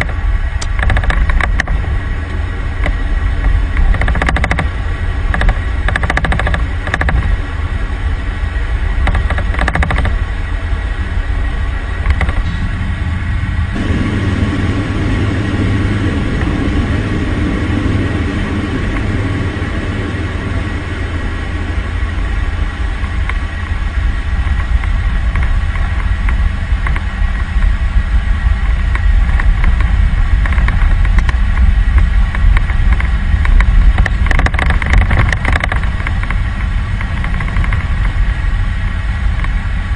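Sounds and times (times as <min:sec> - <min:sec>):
engine whining tones: 0:00.0 - 0:28.4
aircraft engine rumble: 0:00.0 - 0:39.9.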